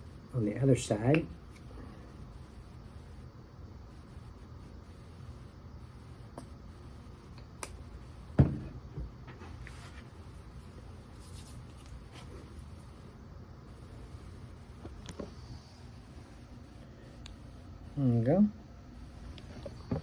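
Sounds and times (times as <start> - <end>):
bottle knocking on table: 8.4 - 8.7.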